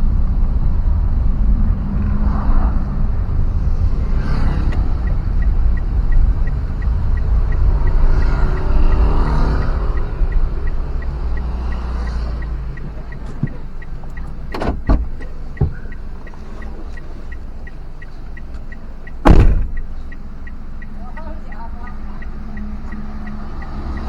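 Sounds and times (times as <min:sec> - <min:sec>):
vehicle road and engine rumble: 0:00.0 - 0:24.0
light regular ticking: 0:03.6 - 0:24.0
loud thump: 0:14.5 - 0:15.8, 0:19.2 - 0:19.8
short knocks: 0:19.2 - 0:20.0.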